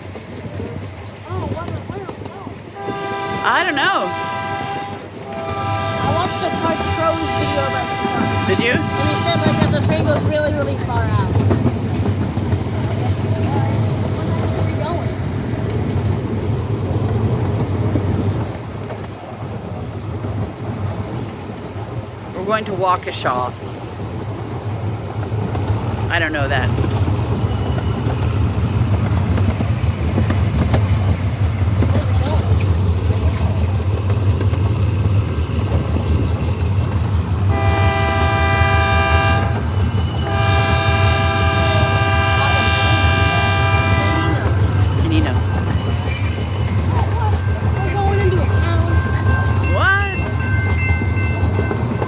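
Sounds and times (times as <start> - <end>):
train rumbling along track: 0.0 - 52.0
wind buffeting microphone: 0.0 - 52.0
train horn blasts: 2.8 - 10.2, 37.5 - 44.8.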